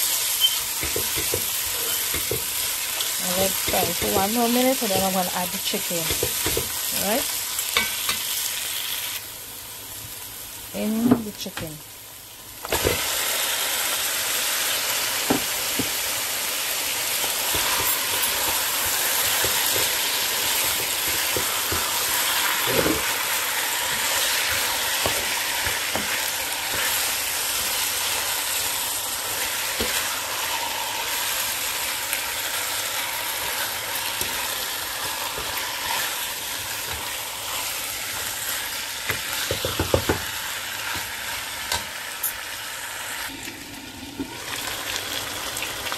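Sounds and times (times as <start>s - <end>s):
chicken sizzling in hot oil: 0.0s - 11.2s, 11.9s - 45.9s
spoon scraping a pan: 0.4s - 5.2s.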